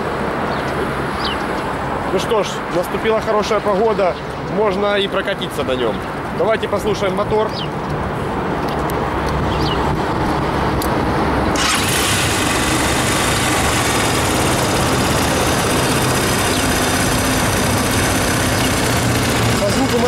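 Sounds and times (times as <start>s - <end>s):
motorcycle engine idling: 11.6s - 20.0s.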